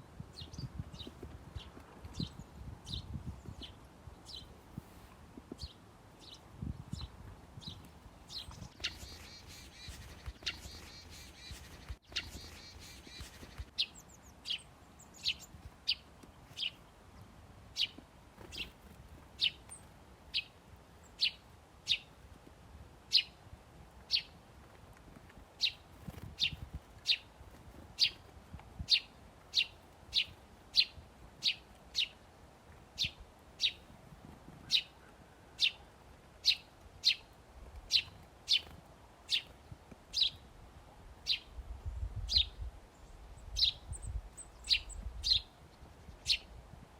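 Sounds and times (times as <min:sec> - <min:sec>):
small bird chirping: 0:00.3 - 0:04.5, 0:05.5 - 0:16.9, 0:17.8 - 0:18.8, 0:19.4 - 0:22.1, 0:25.6 - 0:27.3, 0:28.0 - 0:32.2, 0:33.0 - 0:33.9, 0:36.4 - 0:38.7, 0:39.3 - 0:40.4, 0:42.1 - 0:46.5.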